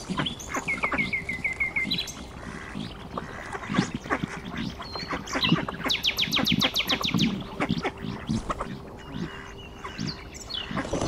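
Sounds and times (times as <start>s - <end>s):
bird chirps and trills: 0.0s - 11.0s.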